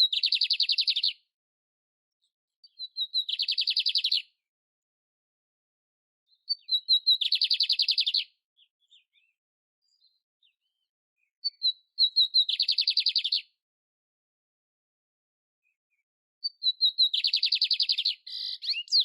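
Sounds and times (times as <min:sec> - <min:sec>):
canary singing trills: 0:00.0 - 0:01.2, 0:02.6 - 0:04.4, 0:06.3 - 0:13.6, 0:16.4 - 0:19.0.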